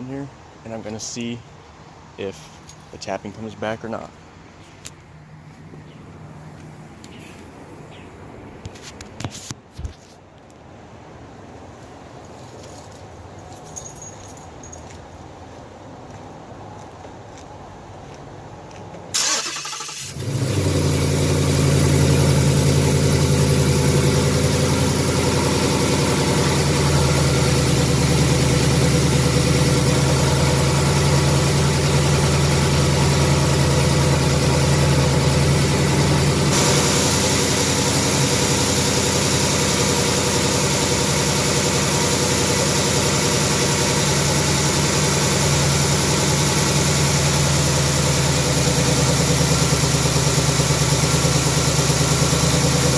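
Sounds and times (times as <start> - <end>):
engine starter cranking: 19.2 - 22.1
car engine idling: 19.2 - 52.9.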